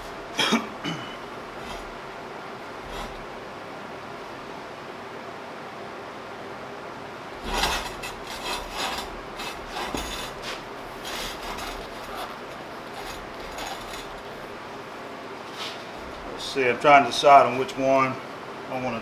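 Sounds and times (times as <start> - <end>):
rasping strokes on steel: 1.6 - 2.0, 2.9 - 3.2, 7.4 - 14.2.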